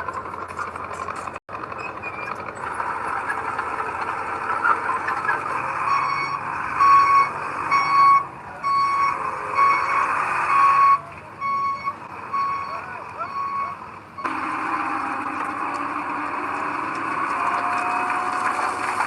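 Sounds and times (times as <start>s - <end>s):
heavy machinery diesel engine: 0.0s - 19.0s
backup alarm beeping: 5.8s - 14.4s.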